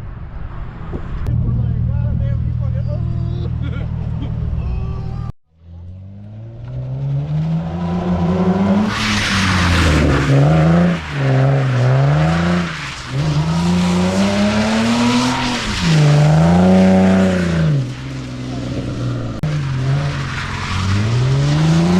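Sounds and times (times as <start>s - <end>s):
car engine revving hard: 6.2s - 17.9s.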